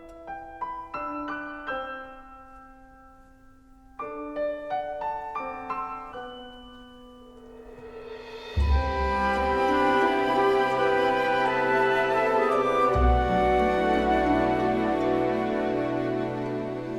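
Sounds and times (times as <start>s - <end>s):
slow gentle solo piano: 0.0s - 8.1s.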